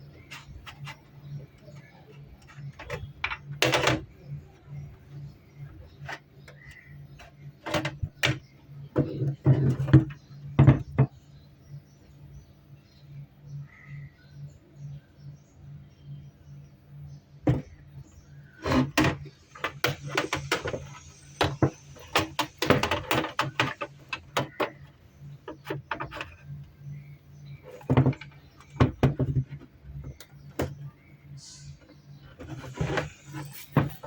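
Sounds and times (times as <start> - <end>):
steady low hum: 0.0 - 34.0
small hardware clicking and knocking: 5.6 - 11.2, 18.6 - 26.7.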